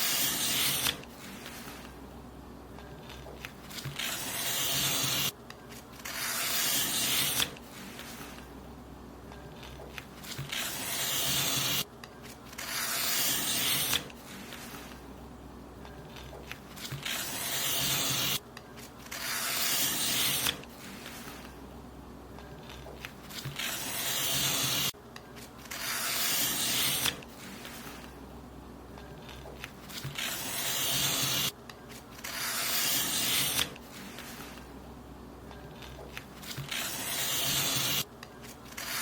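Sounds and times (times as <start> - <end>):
paper being cut: 0.0 - 1.9, 3.0 - 5.4, 6.0 - 8.4, 9.6 - 15.0, 16.1 - 18.4, 19.0 - 21.5, 22.6 - 28.1, 29.2 - 34.7, 35.8 - 39.0.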